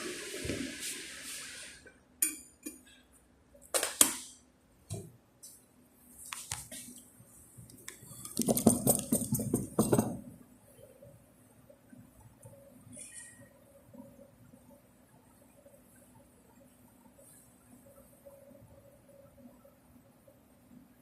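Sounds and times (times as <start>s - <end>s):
steady hiss: 0.0s - 2.0s
dishes clinking and clattering: 8.2s - 10.3s.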